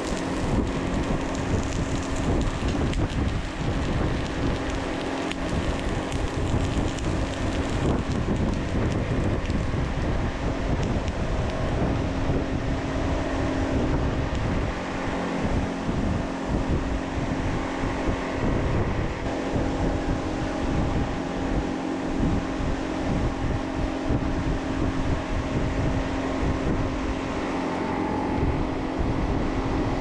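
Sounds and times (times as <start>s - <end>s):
machine hum: 0.0s - 30.0s
rushing airy noise: 26.1s - 30.0s.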